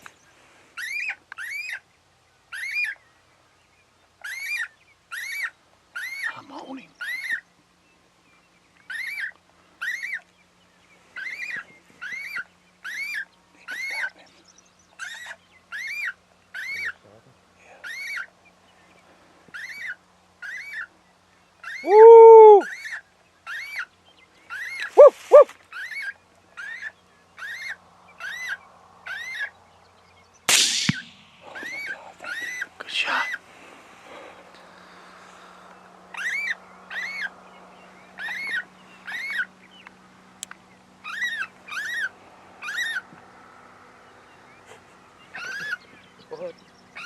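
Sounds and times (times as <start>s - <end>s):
loud lower call: 21.8s - 22.7s, 25.0s - 25.5s
rifle shot: 30.5s - 31.8s.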